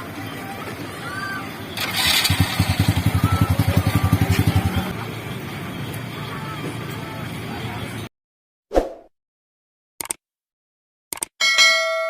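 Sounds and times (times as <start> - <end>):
motorcycle engine running: 1.8 - 4.9.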